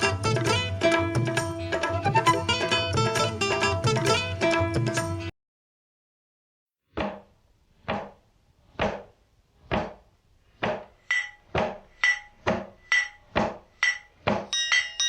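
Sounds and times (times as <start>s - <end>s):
drum-like strikes: 10.6s - 15.0s
ringing bell-like tone: 11.0s - 15.0s.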